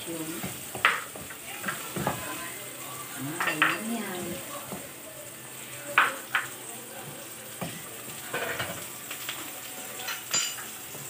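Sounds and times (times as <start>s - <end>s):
onions sizzling in hot oil: 0.0s - 11.0s
knocks against a pan: 0.4s - 2.3s, 3.4s - 3.9s, 6.0s - 6.6s.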